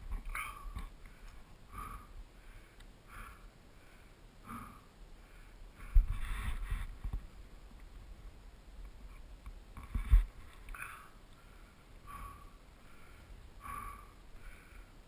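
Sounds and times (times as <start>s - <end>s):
person breathing in short puffs: 5.4s - 7.0s.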